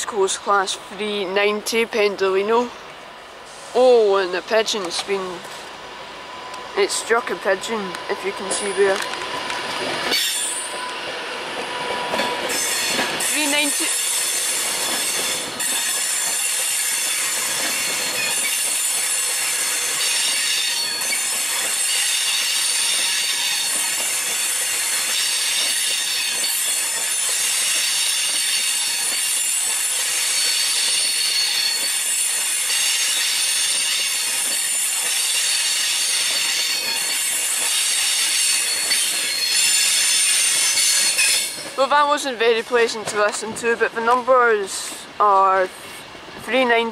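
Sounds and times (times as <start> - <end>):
electric train squealing: 8.1 - 11.1, 11.7 - 41.8.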